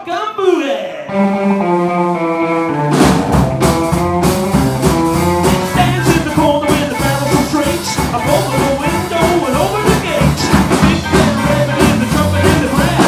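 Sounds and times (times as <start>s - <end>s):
live rockabilly band playing: 1.1s - 13.0s
drums keeping steady beat: 2.8s - 13.0s.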